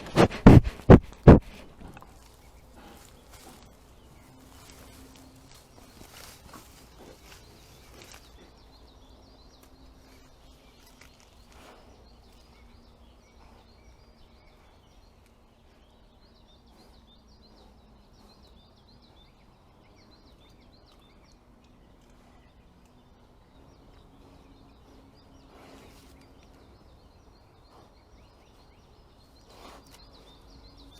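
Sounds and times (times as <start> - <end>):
small birds chirping: 0.0 - 30.9.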